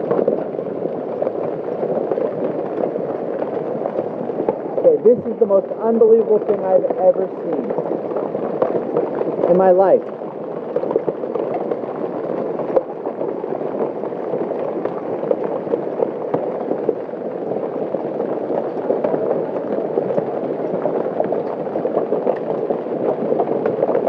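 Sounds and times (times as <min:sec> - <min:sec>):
hail clattering: 0:00.0 - 0:24.0.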